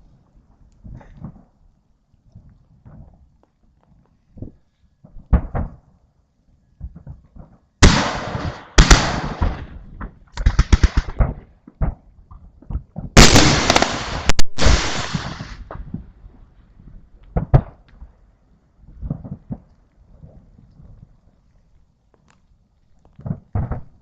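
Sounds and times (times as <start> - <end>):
muffled firework thumps: 4.3 - 5.8, 6.8 - 7.6, 9.4 - 18.2, 18.9 - 21.0, 23.1 - 24.0
loud firework bangs: 7.8 - 11.4, 13.2 - 16.0
barrage of firework bangs and cracks: 7.8 - 12.0, 13.1 - 16.1
firework crackling: 13.2 - 16.1.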